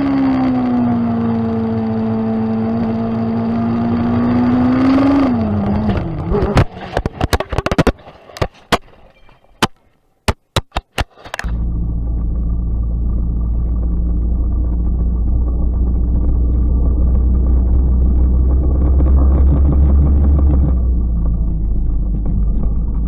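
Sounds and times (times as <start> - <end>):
motorcycle engine running: 0.0 - 7.7, 11.4 - 23.0
sharp knocks and clicks: 5.8 - 11.5.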